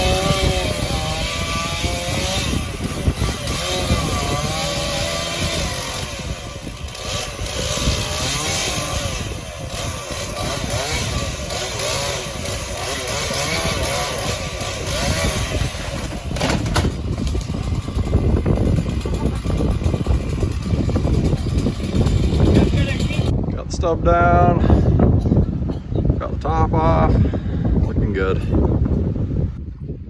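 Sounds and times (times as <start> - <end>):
chainsaw cutting wood: 0.0 - 23.3.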